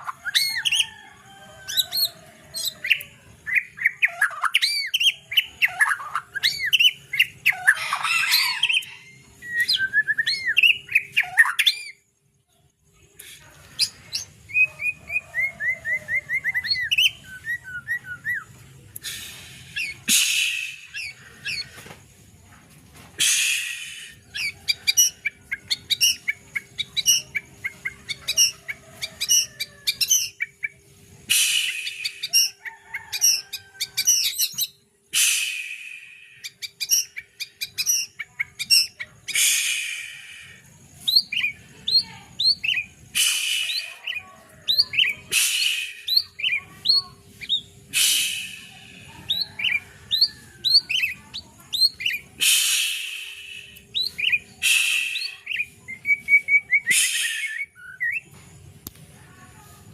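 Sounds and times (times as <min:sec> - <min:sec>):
songbird chirping: 0:00.0 - 0:59.9
harsh buzzy bird calls: 0:13.1 - 0:22.3, 0:23.2 - 0:58.2.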